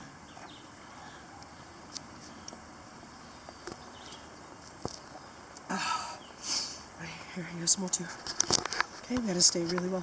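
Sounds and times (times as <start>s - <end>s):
faint outdoor hiss: 0.0s - 10.0s.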